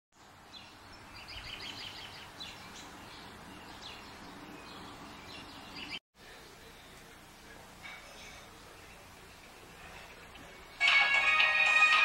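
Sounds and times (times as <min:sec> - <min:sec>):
small birds chirping: 0:00.2 - 0:10.8.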